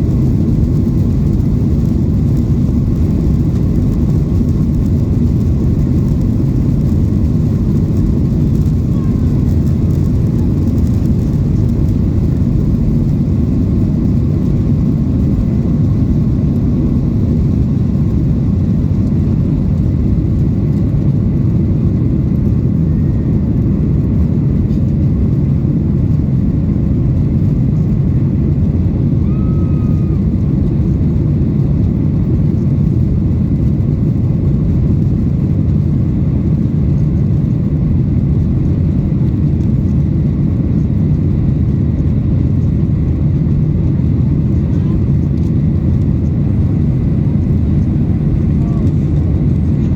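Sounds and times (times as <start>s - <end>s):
jet engine roar in cabin: 0.0s - 49.9s.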